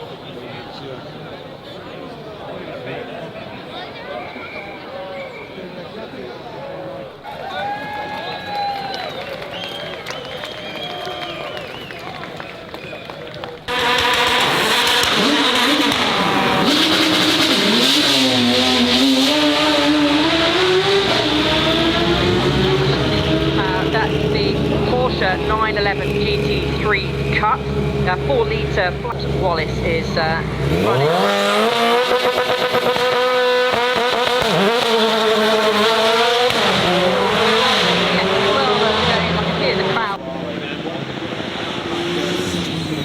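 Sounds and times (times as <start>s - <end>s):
race car engine accelerating: 13.5s - 43.0s.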